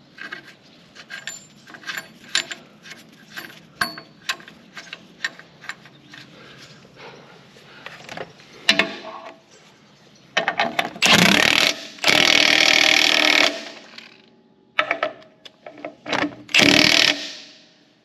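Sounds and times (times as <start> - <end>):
metal tools clinking: 0.2 - 6.8
impact wrench running: 11.0 - 14.1, 16.5 - 17.4.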